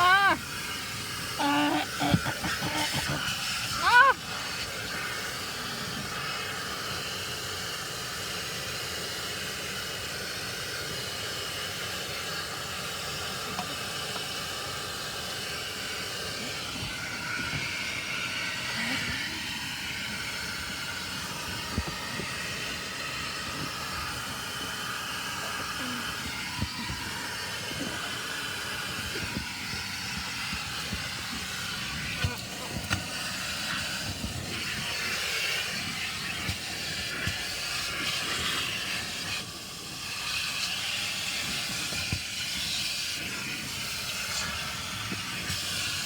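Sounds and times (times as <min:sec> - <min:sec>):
steady hissing rush: 0:00.0 - 0:46.0.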